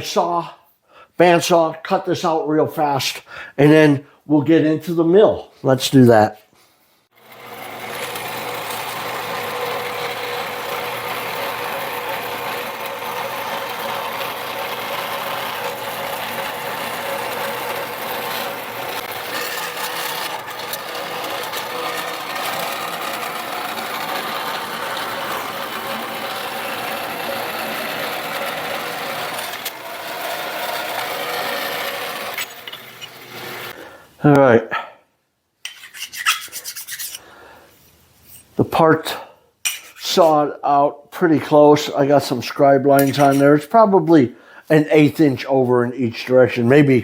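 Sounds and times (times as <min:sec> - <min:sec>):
bandsaw cutting metal: 0:07.2 - 0:33.9, 0:41.5 - 0:43.8.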